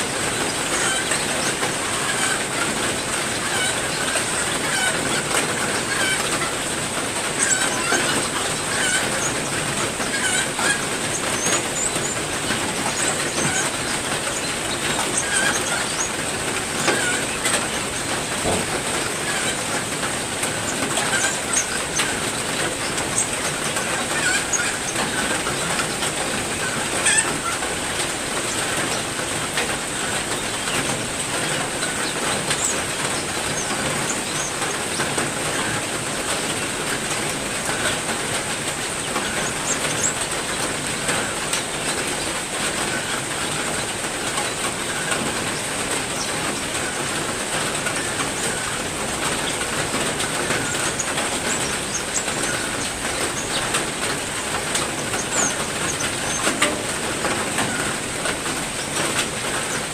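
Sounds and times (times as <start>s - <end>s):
heavy rain falling: 0.0s - 59.9s
songbirds chirping: 30.0s - 59.9s.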